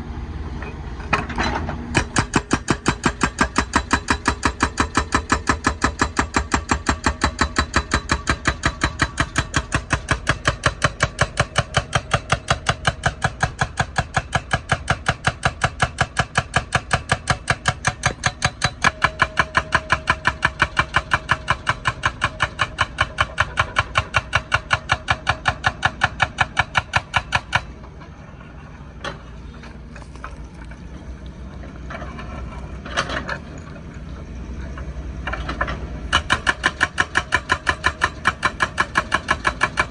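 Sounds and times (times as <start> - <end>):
excavator engine running: 0.0 - 39.9
hydraulic breaker hammering asphalt: 1.1 - 27.8, 35.2 - 39.9.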